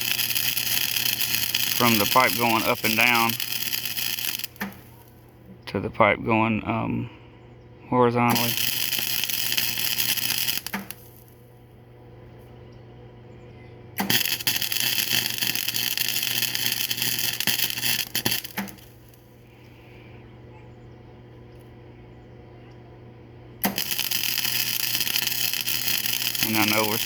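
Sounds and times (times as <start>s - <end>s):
welding arc crackling and spattering: 0.0s - 5.2s, 8.3s - 11.4s, 14.0s - 19.3s, 23.6s - 27.0s
steady low hum: 0.0s - 27.0s.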